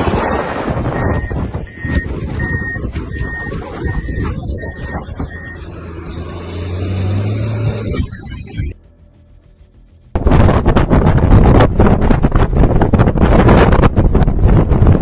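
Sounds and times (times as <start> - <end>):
low engine rumble: 0.0 - 7.2, 7.9 - 15.0
reversing alarm beeping: 0.1 - 6.2.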